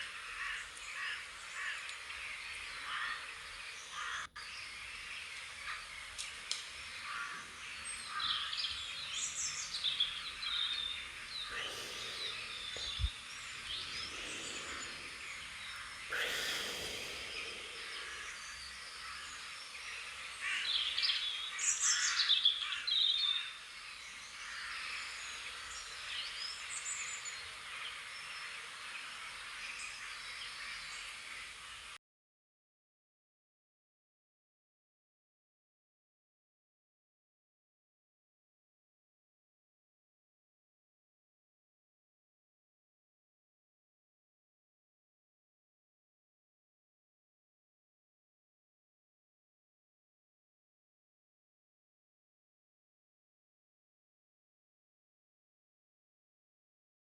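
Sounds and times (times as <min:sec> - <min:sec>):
small birds chirping and trilling: 0:00.0 - 0:32.0.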